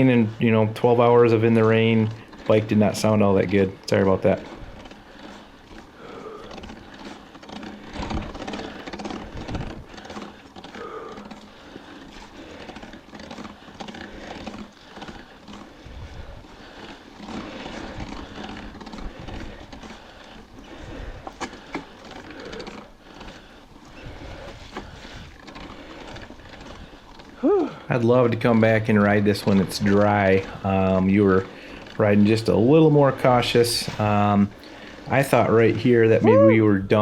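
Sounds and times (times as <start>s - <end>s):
rough bike drivetrain: 0.0s - 37.0s
person panting hard: 4.4s - 27.9s, 34.5s - 35.1s.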